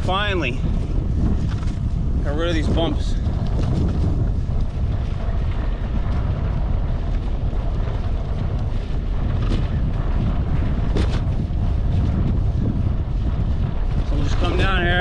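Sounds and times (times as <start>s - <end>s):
wind rushing over microphone: 0.0s - 15.0s
bicycle clicks and rattles: 1.3s - 1.9s, 3.2s - 12.1s.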